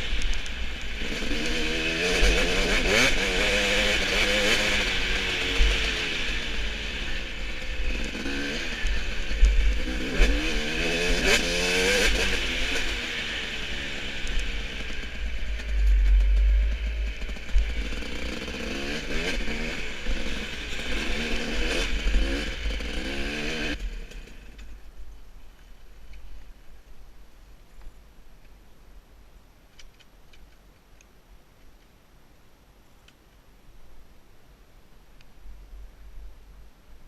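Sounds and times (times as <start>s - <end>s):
motorcycle engine revving: 0.0s - 24.7s.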